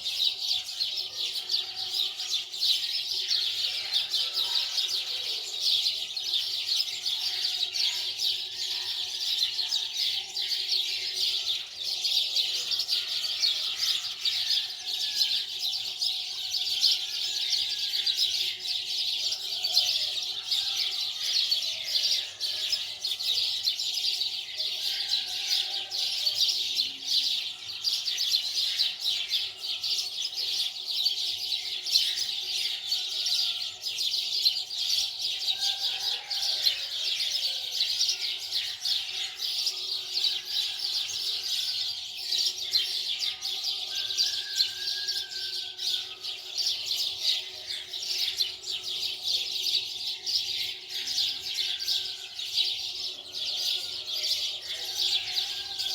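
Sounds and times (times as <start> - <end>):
small birds chirping: 0.0 - 8.9.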